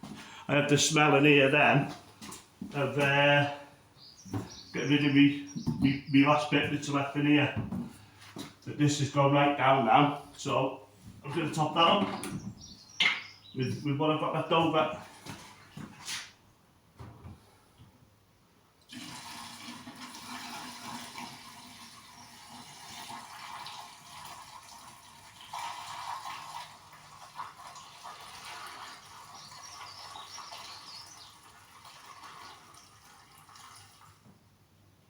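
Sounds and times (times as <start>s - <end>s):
liquid pouring into a tank: 18.8s - 34.3s.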